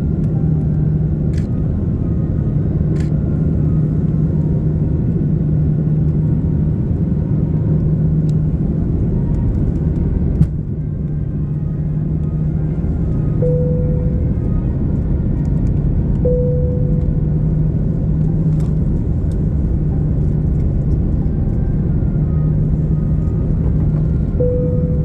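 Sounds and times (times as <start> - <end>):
airplane cabin engine rumble: 0.0 - 25.0
brief tone: 10.9 - 18.8, 21.2 - 25.0.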